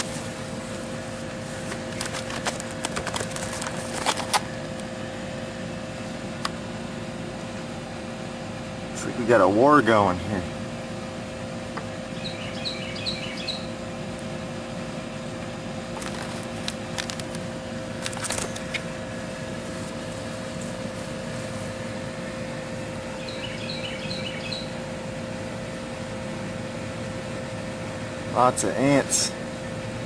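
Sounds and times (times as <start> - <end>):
steady machine hum: 0.0 - 30.0
bird chirping: 12.1 - 13.8, 23.2 - 24.8.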